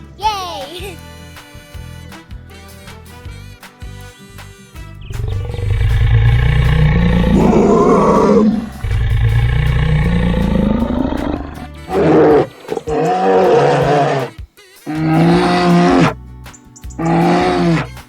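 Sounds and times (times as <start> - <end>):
animal roars rising in pitch: 5.2 - 14.3, 14.9 - 16.2, 17.0 - 18.0
short animal call: 17.0 - 18.0.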